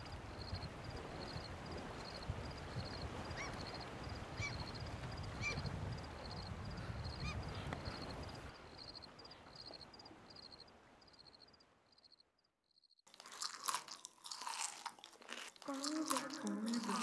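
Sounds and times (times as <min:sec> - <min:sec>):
insect chirps: 0:07.9 - 0:17.0.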